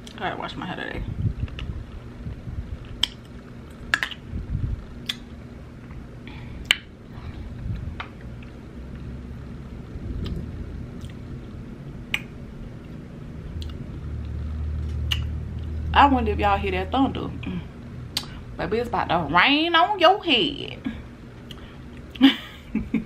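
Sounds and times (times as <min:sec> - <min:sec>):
lip smacks: 0:02.8 - 0:04.2, 0:05.0 - 0:05.3, 0:06.6 - 0:06.9, 0:10.2 - 0:10.4, 0:11.0 - 0:11.2, 0:12.1 - 0:13.0, 0:13.6 - 0:13.8, 0:14.8 - 0:15.3, 0:18.1 - 0:18.4, 0:21.4 - 0:22.2.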